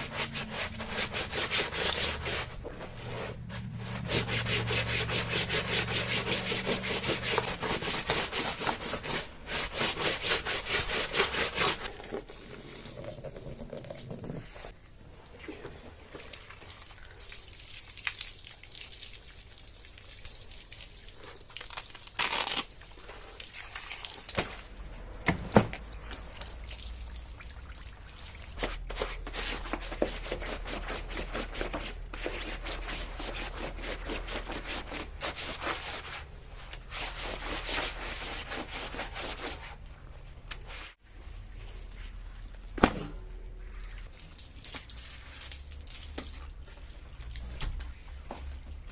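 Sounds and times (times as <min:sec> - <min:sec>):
scrubbing with soapy water: 0:00.0 - 0:25.2, 0:25.8 - 0:39.9, 0:43.4 - 0:48.9.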